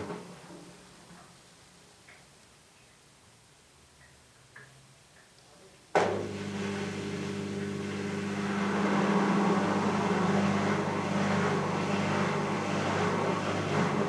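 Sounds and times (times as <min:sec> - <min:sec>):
washing machine spin cycle: 0:06.0 - 0:14.0.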